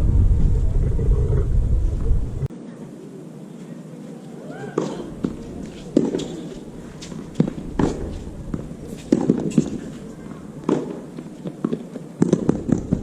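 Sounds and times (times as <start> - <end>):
racquets hitting tennis ball: 4.8 - 13.0
tennis ball bouncing on court: 4.8 - 13.0.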